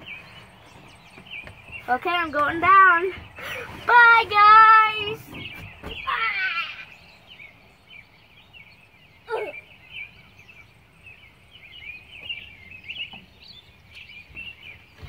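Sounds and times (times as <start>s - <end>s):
small birds chirping: 0.0s - 15.0s
bird cry falling in pitch: 4.9s - 7.1s.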